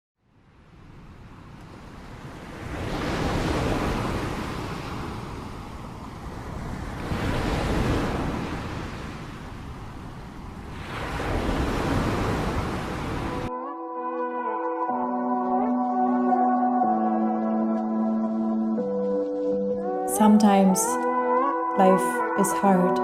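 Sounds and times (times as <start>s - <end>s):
waves breaking: 0.6s - 13.5s.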